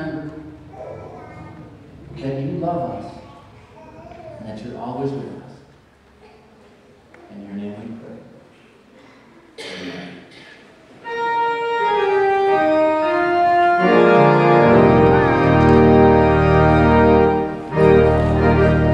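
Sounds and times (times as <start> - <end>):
church organ chords: 11.0 - 18.9.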